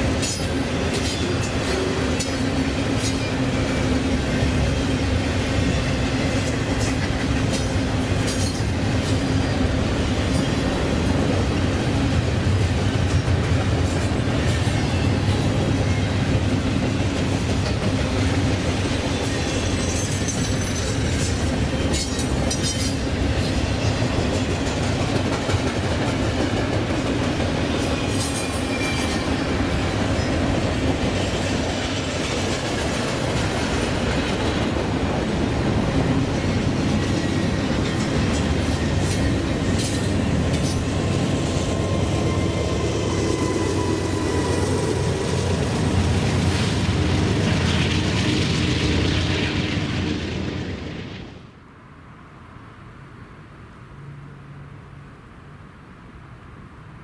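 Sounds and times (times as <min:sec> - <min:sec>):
train wheels on rails: 0:00.0 - 0:51.6
sharp rail clicks: 0:06.3 - 0:09.2
high wheel squeal: 0:27.8 - 0:29.6.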